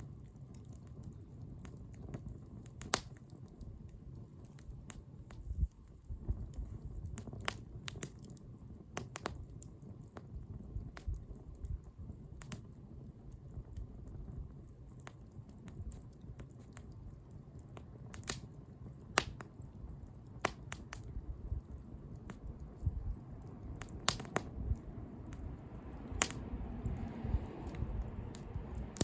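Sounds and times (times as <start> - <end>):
bonfire crackling and popping: 0.0 - 29.0
low steady rumble: 21.0 - 29.0.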